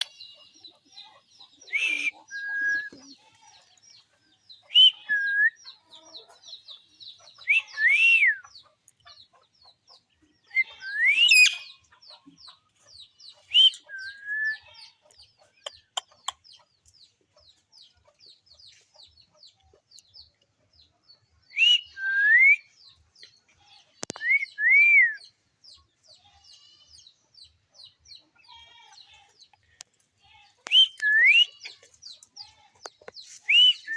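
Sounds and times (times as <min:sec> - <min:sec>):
parrots whistled calls: 0:01.7 - 0:02.9, 0:04.7 - 0:05.5, 0:10.6 - 0:11.7, 0:21.6 - 0:22.7, 0:30.7 - 0:31.6.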